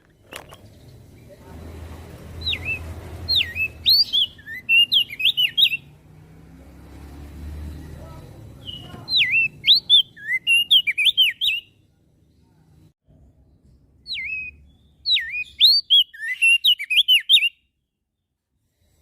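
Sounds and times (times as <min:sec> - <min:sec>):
bird singing whistled notes: 0:02.4 - 0:06.0, 0:08.5 - 0:11.8, 0:14.0 - 0:17.9.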